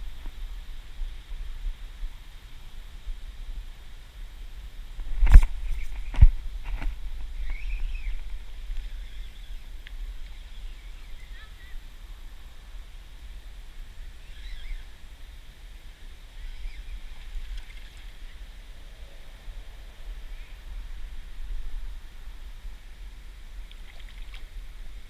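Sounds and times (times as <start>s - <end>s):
bird chirps: 7.4s - 8.2s, 8.8s - 9.6s, 14.2s - 14.9s
steady low rumble: 18.2s - 25.0s.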